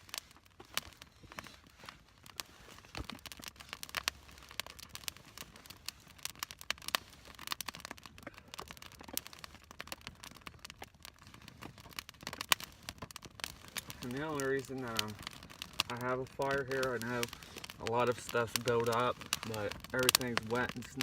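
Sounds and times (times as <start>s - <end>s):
small wood fire crackling: 0.0s - 21.0s.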